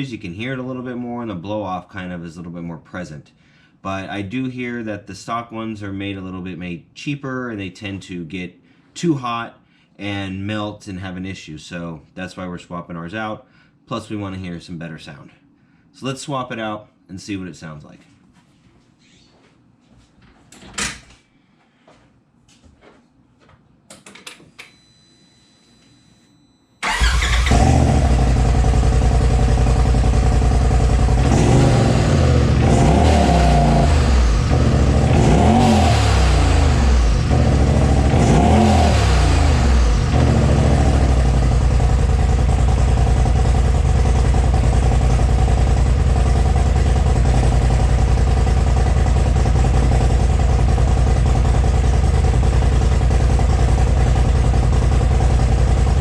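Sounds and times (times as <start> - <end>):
engine revving and idling: 26.8 - 56.0.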